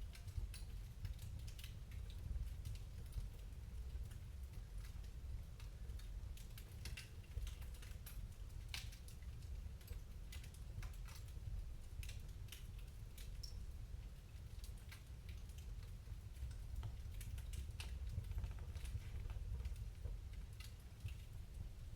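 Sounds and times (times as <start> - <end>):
wood fire crackling: 0.0 - 21.9.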